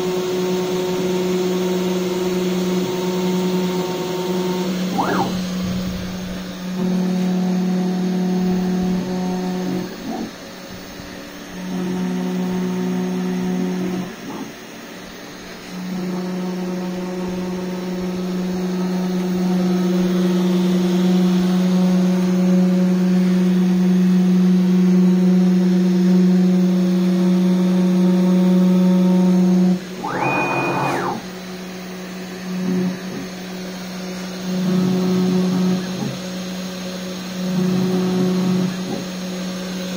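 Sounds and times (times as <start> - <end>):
machine whine: 0.0 - 39.9
machine hum: 0.7 - 26.1, 28.7 - 36.2.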